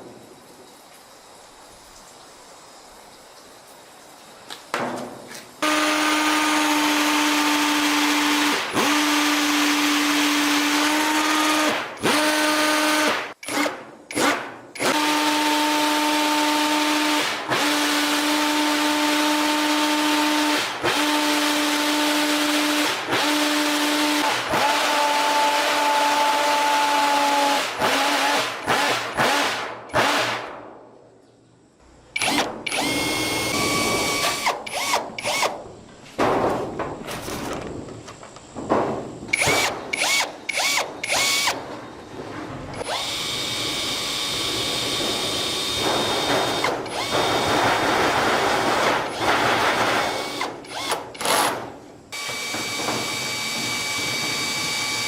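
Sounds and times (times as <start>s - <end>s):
electric power tool whining: 5.6s - 30.2s, 32.2s - 35.6s, 39.3s - 41.6s, 42.8s - 51.6s, 52.2s - 55.0s.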